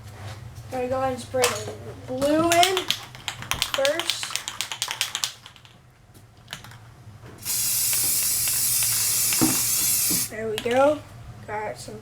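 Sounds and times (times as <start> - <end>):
sharp rattling clicks: 2.5 - 5.8, 7.4 - 10.8
aerosol spray can hissing: 7.4 - 10.4.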